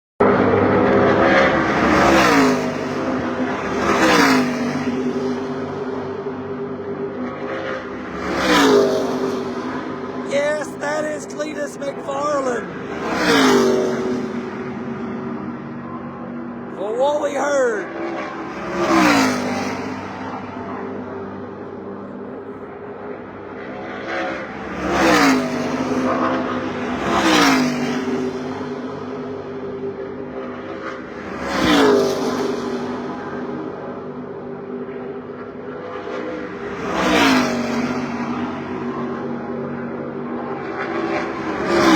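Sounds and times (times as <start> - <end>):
race trucks droning around track: 0.2 - 12.0, 12.6 - 41.9.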